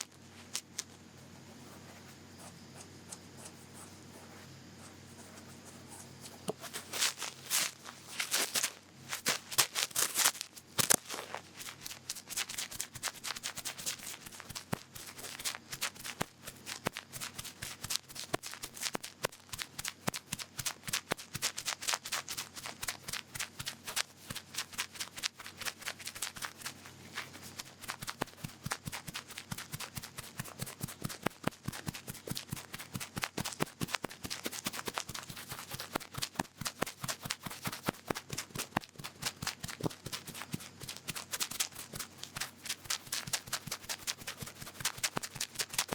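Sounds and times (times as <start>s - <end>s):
cotton swab scratching in ear: 23.8s - 45.9s.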